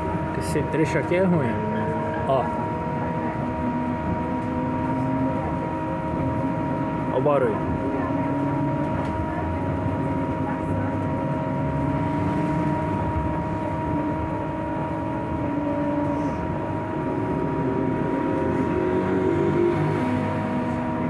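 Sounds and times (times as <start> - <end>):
electric motor whine: 0.0 - 7.1, 11.5 - 21.0
low road rumble: 0.0 - 21.0
rising whine: 11.6 - 21.0.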